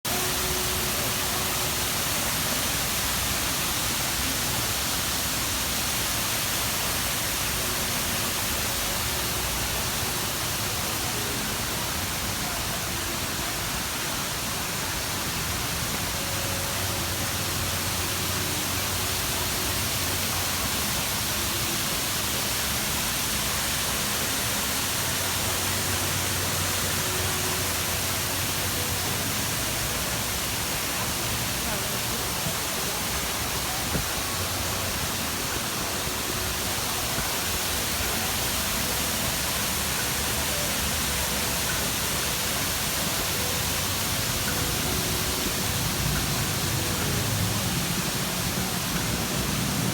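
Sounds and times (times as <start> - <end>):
waterfall into pool: 0.1 - 49.9.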